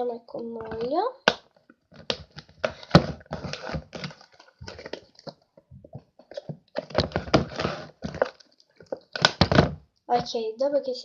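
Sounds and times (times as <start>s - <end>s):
slime stirred in a bowl: 1.9s - 9.7s.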